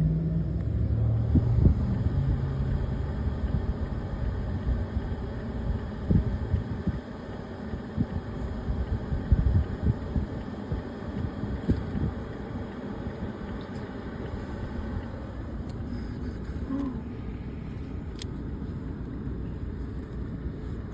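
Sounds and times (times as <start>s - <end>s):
garbage truck engine rumble: 0.0s - 5.2s.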